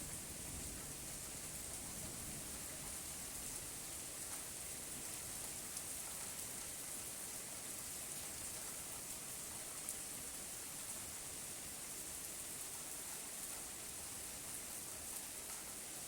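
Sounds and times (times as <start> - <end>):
rain falling: 0.0 - 16.0
raindrops ticking: 4.1 - 4.6.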